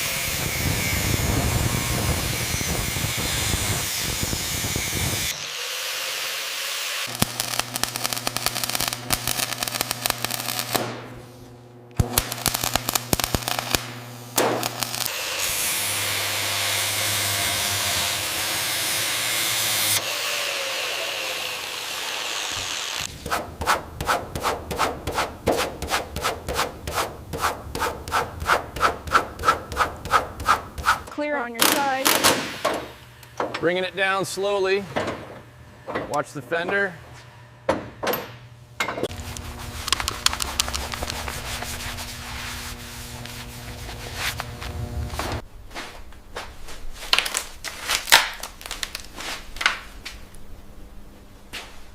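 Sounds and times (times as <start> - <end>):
power tool ticking over hum: 0.0 - 25.4, 26.6 - 34.6, 38.5 - 45.4
rhythmic sanding strokes: 14.7 - 31.1, 39.1 - 45.4.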